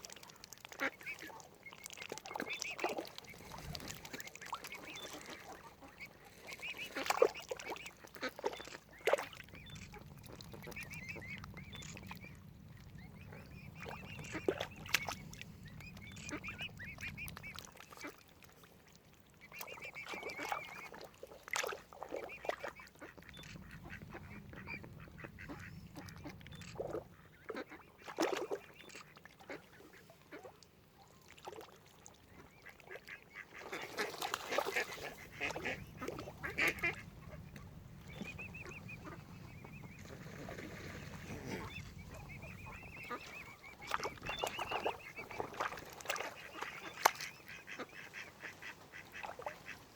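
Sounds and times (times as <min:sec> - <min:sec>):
ducks quacking: 0:13.1 - 0:18.2, 0:22.2 - 0:30.5, 0:32.3 - 0:49.8.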